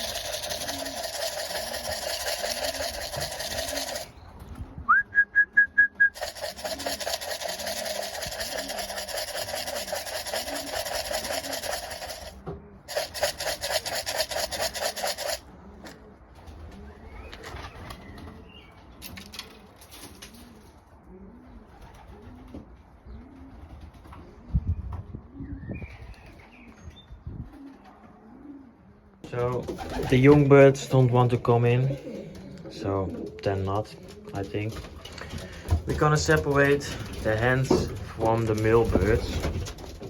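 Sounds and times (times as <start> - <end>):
loud fast rattling buzz: 0.0 - 4.2, 6.2 - 15.4
pigeons cooing: 0.0 - 4.9, 6.1 - 40.0.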